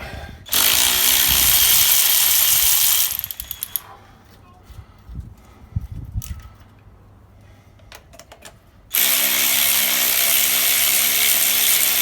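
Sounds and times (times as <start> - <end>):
power tool running: 0.5 - 3.8, 8.9 - 12.0.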